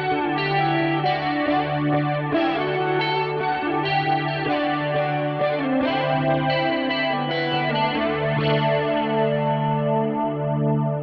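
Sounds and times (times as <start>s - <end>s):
guitar chords with effects: 0.0s - 11.0s.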